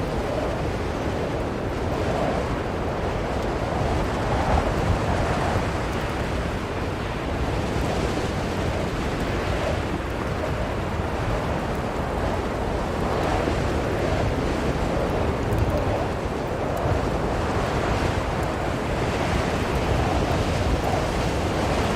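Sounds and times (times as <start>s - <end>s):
blizzard wind blowing in gusts: 0.0s - 21.9s.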